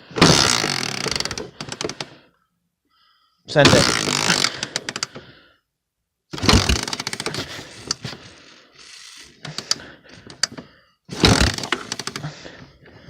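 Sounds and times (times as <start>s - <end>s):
engine clattering as kick-started: 0.2s - 2.1s, 3.7s - 5.2s, 6.4s - 12.5s.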